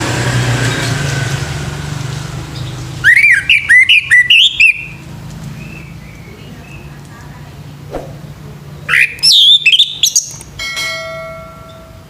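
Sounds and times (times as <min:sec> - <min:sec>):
thrush singing whistled notes: 0:03.0 - 0:05.0, 0:07.9 - 0:10.4.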